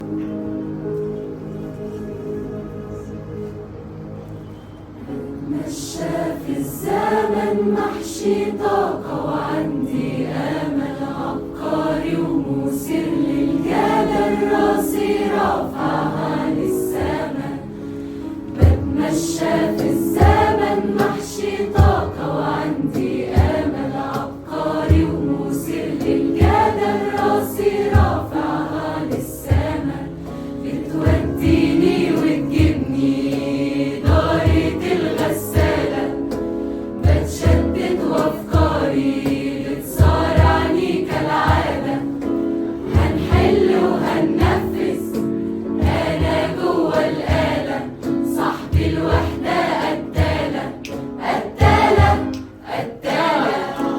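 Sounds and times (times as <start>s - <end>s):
instrumental backing: 0.0s - 53.9s
choir singing: 5.0s - 53.9s
steady percussion beat: 18.6s - 24.2s, 26.0s - 28.6s, 34.0s - 36.0s, 40.0s - 41.9s, 43.0s - 44.9s, 51.3s - 52.3s.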